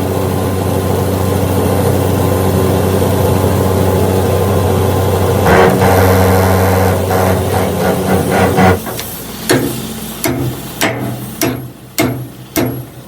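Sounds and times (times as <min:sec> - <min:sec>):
machine motor humming: 0:04.2 - 0:12.0.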